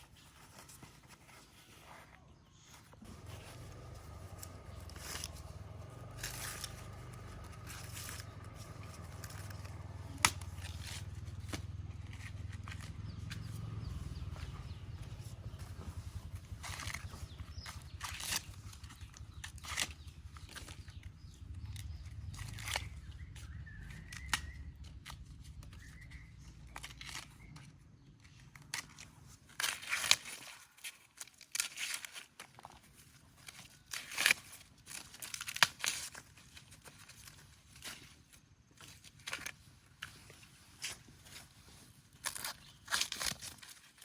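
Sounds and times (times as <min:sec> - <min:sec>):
rustling crinkling and tearing: 0:00.0 - 0:44.0
low steady rumble: 0:02.8 - 0:29.5.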